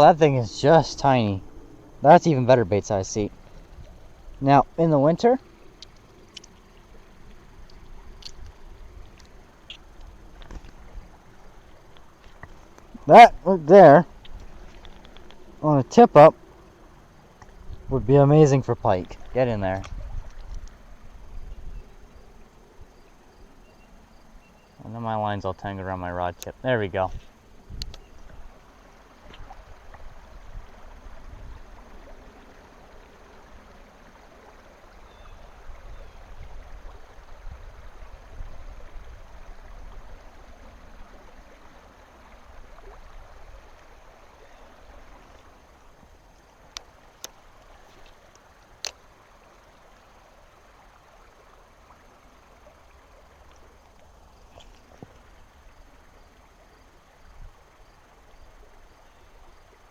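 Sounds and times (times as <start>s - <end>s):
river water running: 0.0s - 59.9s.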